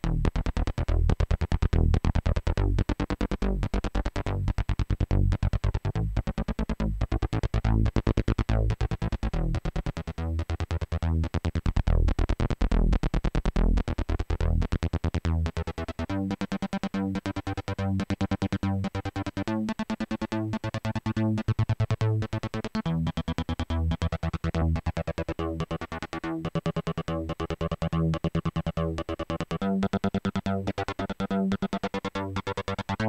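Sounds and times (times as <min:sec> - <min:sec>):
heavy bass line: 0:00.0 - 0:09.8.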